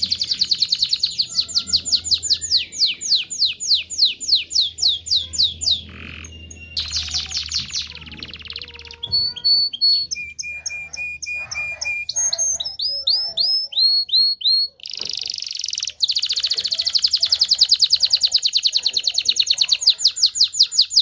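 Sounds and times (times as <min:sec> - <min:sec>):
canary singing: 0:00.0 - 0:21.0.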